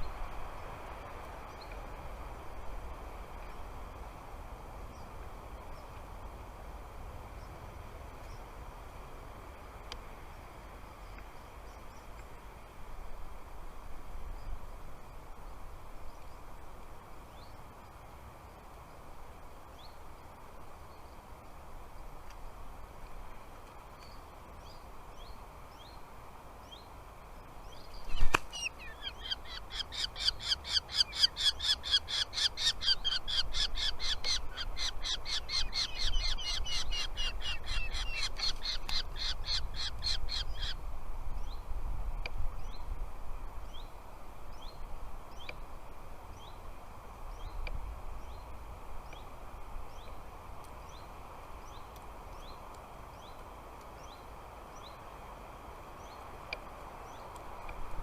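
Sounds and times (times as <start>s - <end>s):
harsh repeated bird calls: 28.0s - 40.8s.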